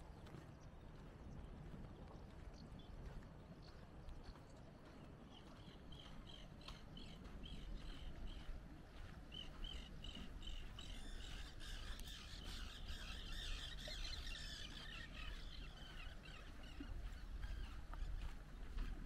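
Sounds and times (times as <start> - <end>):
bird warbling song: 9.3 - 18.4.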